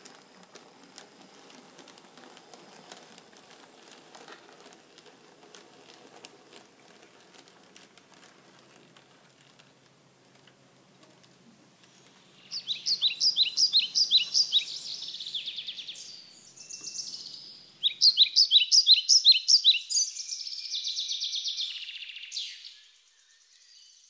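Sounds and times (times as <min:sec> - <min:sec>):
songbird singing with trills: 0:12.2 - 0:24.0.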